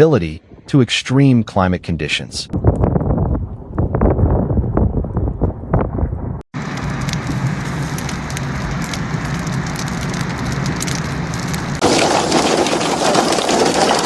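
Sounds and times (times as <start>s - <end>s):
heavy rain on hard surface: 6.6s - 14.0s.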